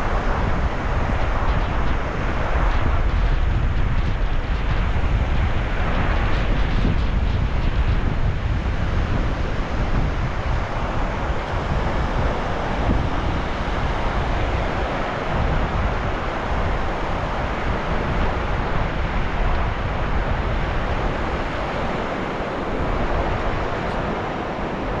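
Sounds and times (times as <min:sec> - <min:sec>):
sea surf washing: 0:00.0 - 0:25.0
wind buffeting microphone: 0:00.0 - 0:25.0.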